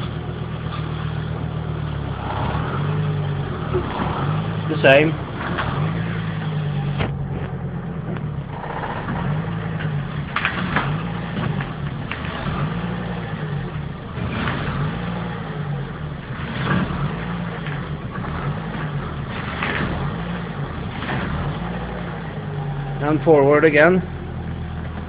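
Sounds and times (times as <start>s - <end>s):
car engine running at low revs: 0.0s - 25.0s.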